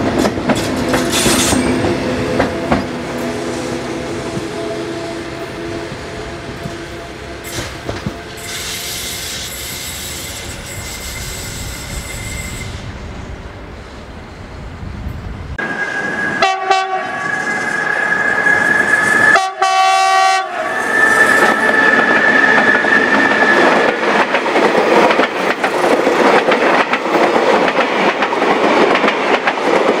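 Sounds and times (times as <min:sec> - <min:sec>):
electric train rumble and whine: 0:00.0 - 0:30.0
train horn blasts: 0:01.9 - 0:08.6, 0:16.4 - 0:17.3, 0:19.3 - 0:22.2.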